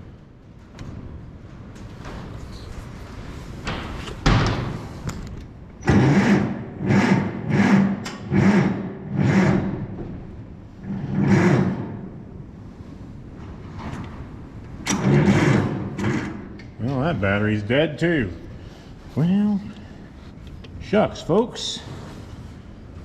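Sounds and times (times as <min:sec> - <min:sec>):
starter motor cranking engine: 0:05.8 - 0:09.8, 0:14.9 - 0:16.4.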